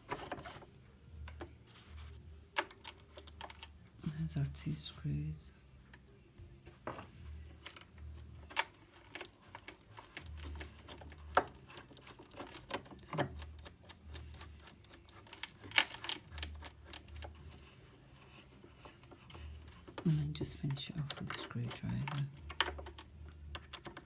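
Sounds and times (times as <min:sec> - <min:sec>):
small metal parts clicking: 0:07.6 - 0:17.7, 0:20.7 - 0:24.0.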